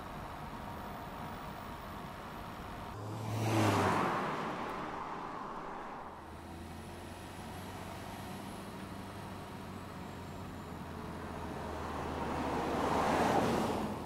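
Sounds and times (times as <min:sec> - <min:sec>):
car passing by: 0:02.9 - 0:08.2, 0:11.2 - 0:14.0.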